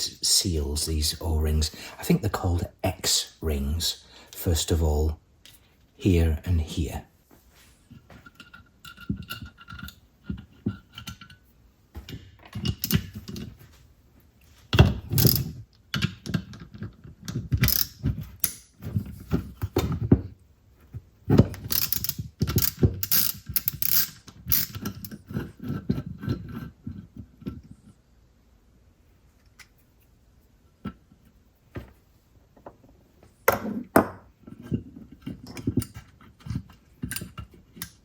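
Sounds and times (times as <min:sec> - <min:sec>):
metal parts and tools rattling: 0:21.3 - 0:26.7.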